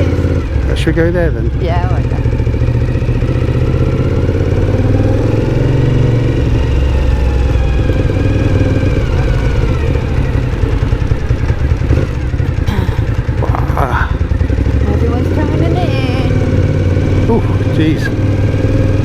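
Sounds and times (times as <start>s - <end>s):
motorcycle engine running: 0.0s - 19.0s
rumbling wind noise: 0.0s - 19.0s.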